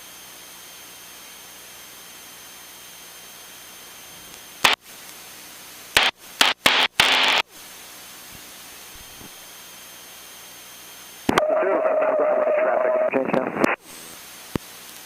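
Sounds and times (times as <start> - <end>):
radio static bursts: 4.6 - 4.8, 6.0 - 7.5, 11.3 - 14.6.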